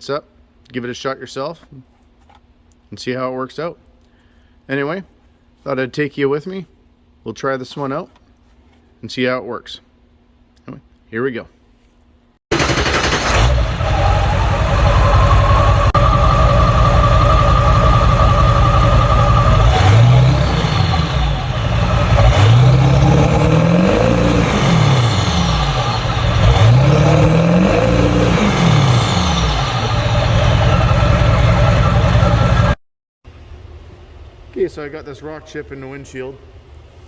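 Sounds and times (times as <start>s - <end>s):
vehicle engine revving: 12.5s - 32.8s.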